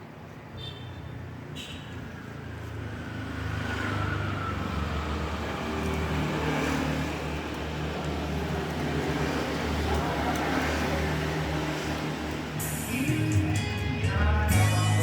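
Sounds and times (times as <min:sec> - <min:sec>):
vehicle engine humming: 0:04.4 - 0:15.0.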